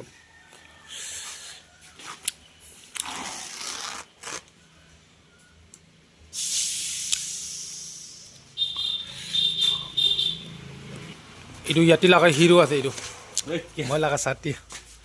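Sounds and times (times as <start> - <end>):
compressed air hissing: 6.3 - 9.7.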